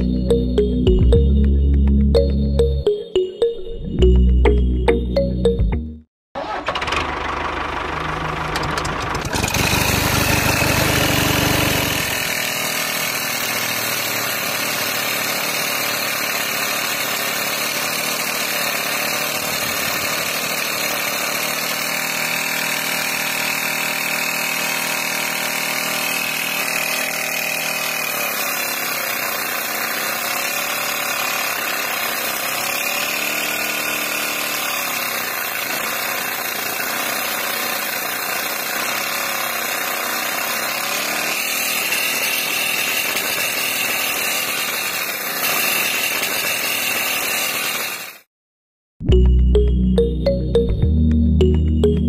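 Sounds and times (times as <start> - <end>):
small motor humming: 8.2 - 44.8.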